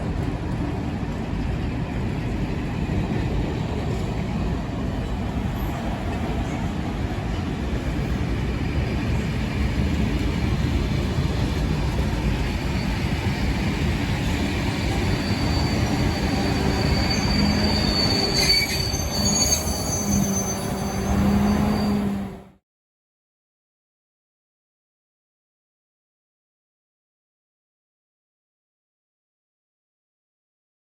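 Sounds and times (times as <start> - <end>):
train wheels rumbling on track: 0.0 - 22.6
high wheel squeals: 14.3 - 22.4.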